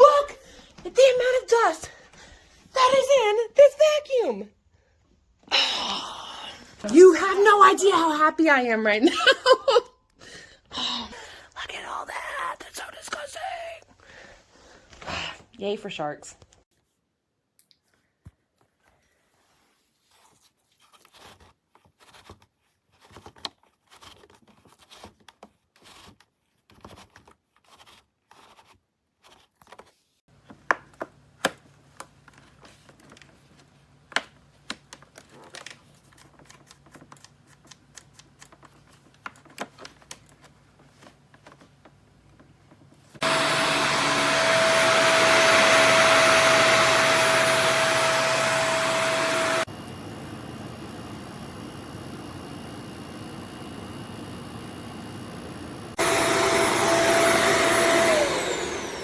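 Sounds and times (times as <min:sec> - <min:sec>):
vacuum cleaner motor whining: 0:43.2 - 0:59.0.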